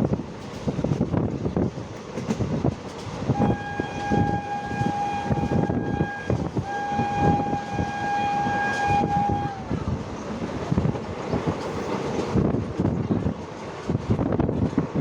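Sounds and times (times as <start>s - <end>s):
train rumbling on the track: 0.0s - 15.0s
train horn blasts: 3.3s - 9.9s.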